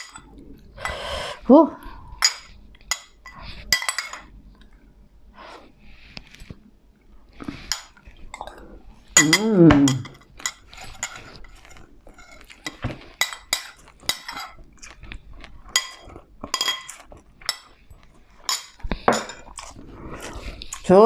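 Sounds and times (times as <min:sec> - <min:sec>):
utensils clinking on a dish: 0:00.0 - 0:00.3, 0:02.2 - 0:04.3, 0:09.2 - 0:14.6, 0:15.7 - 0:17.8, 0:18.4 - 0:19.7.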